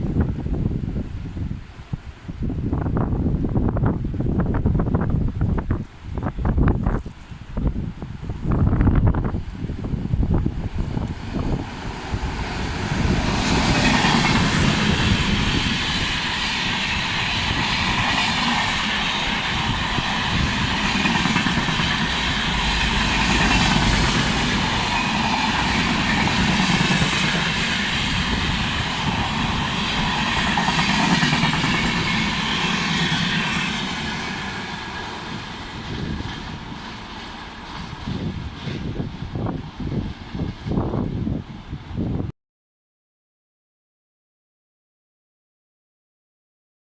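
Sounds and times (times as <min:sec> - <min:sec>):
train passing at high speed: 0:00.0 - 0:42.3
wheels clacking over rail joints: 0:11.0 - 0:39.0.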